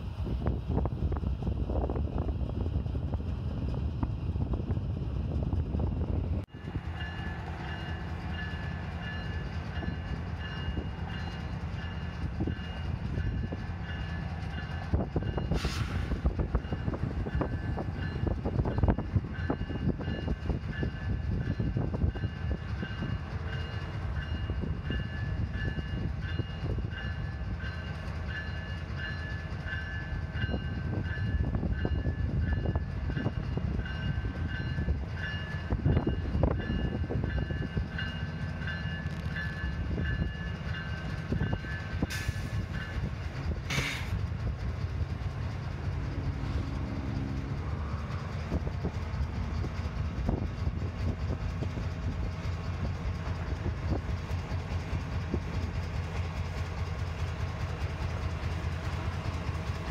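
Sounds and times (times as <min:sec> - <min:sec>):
diesel locomotive engines rumbling: 0:00.0 - 0:59.9
short hiss: 0:15.5 - 0:16.2, 0:43.7 - 0:44.2.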